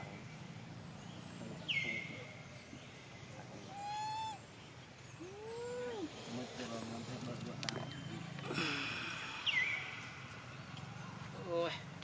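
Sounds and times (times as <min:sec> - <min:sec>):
monkey squealing: 0:03.6 - 0:04.5
short lower monkey call: 0:03.6 - 0:04.5.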